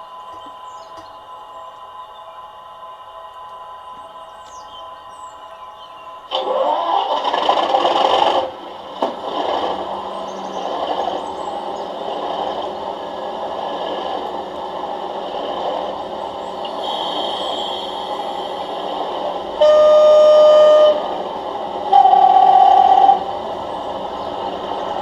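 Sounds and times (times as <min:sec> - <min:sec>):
diesel engine start-up: 0:06.3 - 0:12.9
diesel engine idling: 0:06.3 - 0:25.0.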